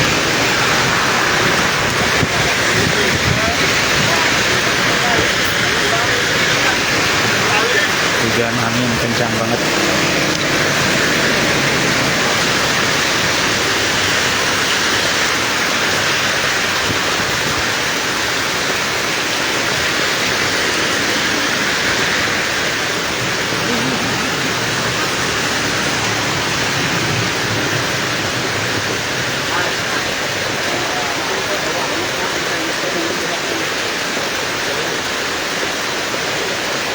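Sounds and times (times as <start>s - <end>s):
strong wind: 0.0s - 31.7s
heavy rain pouring: 0.0s - 36.9s.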